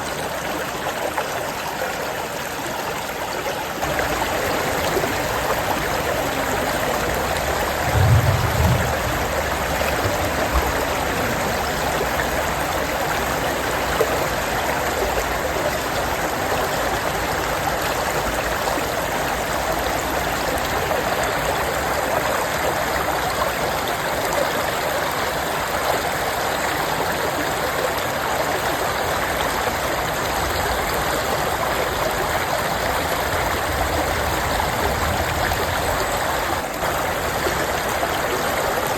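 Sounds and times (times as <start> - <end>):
stream babbling: 0.0 - 38.9
low thump: 7.8 - 10.8.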